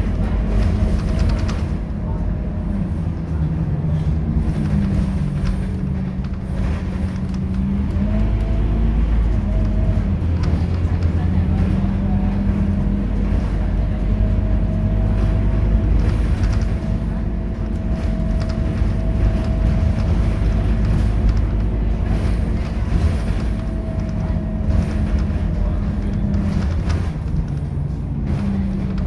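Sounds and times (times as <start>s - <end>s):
bus diesel engine drone: 0.0s - 29.0s.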